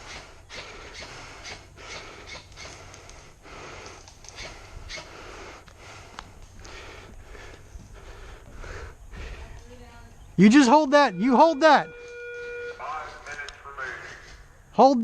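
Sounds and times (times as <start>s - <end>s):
person breathing heavily: 0.0s - 9.8s.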